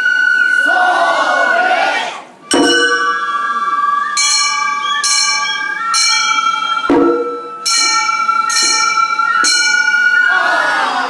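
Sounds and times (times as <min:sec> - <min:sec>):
flute playing held notes: 0:00.0 - 0:11.0
small hand gongs ringing: 0:02.5 - 0:03.5, 0:04.1 - 0:10.5.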